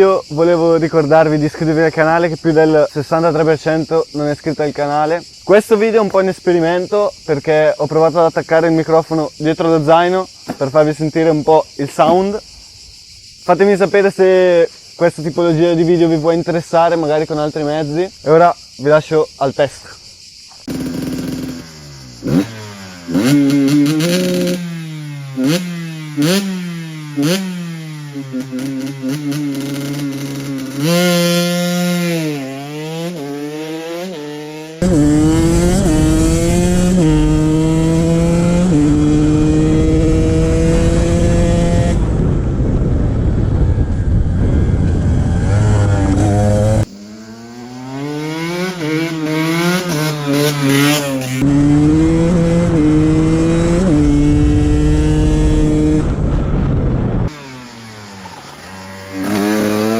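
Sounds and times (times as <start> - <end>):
motorcycle engine revving: 20.6 - 59.9.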